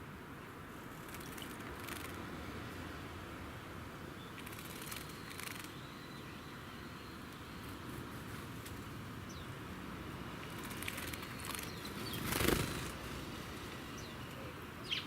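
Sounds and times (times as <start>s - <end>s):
wings flapping in water: 10.5s - 13.0s.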